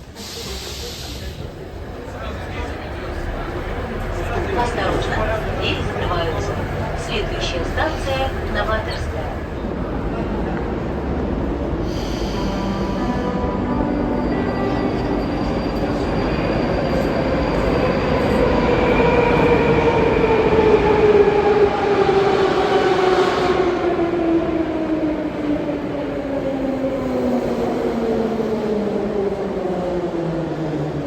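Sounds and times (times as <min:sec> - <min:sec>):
train rumbling in tunnel: 0:00.0 - 0:31.0.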